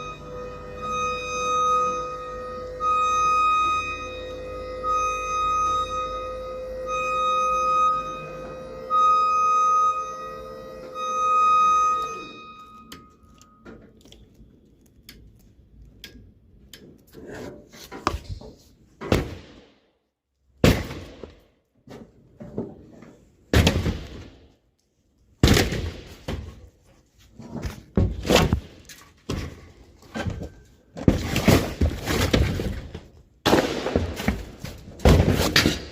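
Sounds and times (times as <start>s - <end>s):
demolition knocks and thuds: 22.3s - 24.4s, 25.4s - 26.8s, 27.4s - 35.9s.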